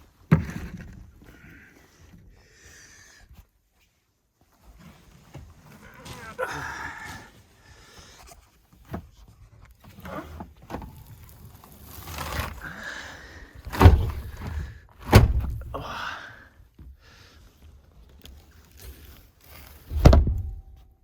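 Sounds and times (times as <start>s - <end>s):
thumps and rustling of gear: 0.0s - 2.3s, 3.3s - 12.9s, 13.5s - 15.9s, 16.7s - 21.0s
loud thumps: 13.7s - 15.8s, 19.9s - 20.7s.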